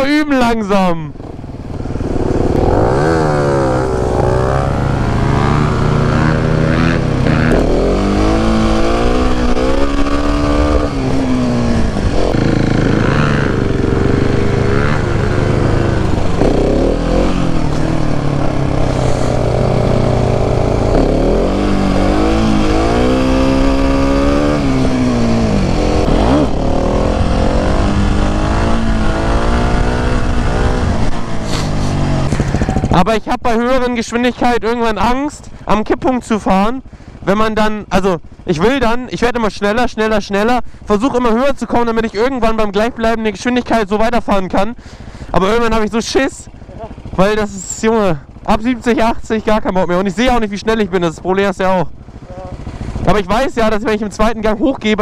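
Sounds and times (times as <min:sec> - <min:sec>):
motorcycle engine revving: 0:01.1 - 0:33.2, 0:33.8 - 0:55.0
wind rushing over microphone: 0:02.0 - 0:33.0.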